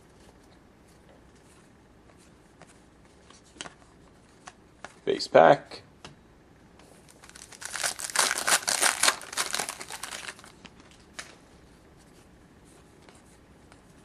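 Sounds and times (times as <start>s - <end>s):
foil wrapper tearing and crinkling: 7.1s - 10.6s.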